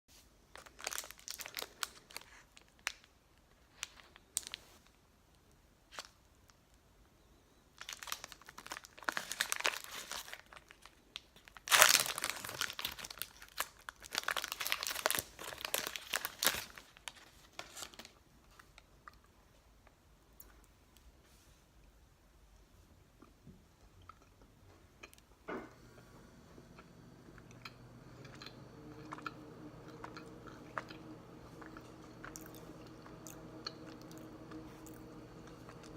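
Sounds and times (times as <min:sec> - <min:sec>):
plastic wrapper crinkling and tearing: 0:00.5 - 0:05.0, 0:05.9 - 0:06.6, 0:07.8 - 0:18.8.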